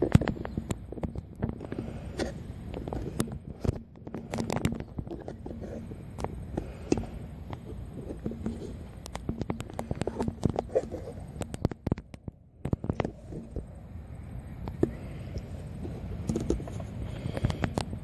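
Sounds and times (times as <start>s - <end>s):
rumble of movement and wind: 0.0s - 18.0s.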